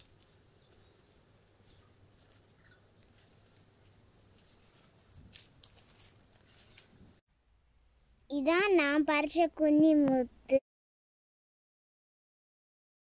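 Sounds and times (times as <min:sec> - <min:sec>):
faint bird chirps: 0:02.6 - 0:02.9, 0:06.5 - 0:08.3.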